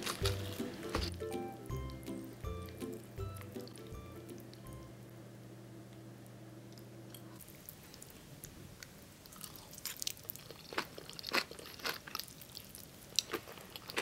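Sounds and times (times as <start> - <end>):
person chewing crunchy food: 0.0 - 4.7, 9.2 - 14.0.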